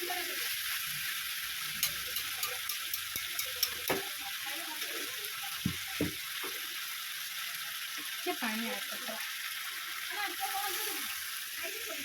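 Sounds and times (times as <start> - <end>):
curry sizzling in a pan: 0.0 - 12.0
spoon knocking against pan: 1.8 - 4.1, 5.6 - 6.6.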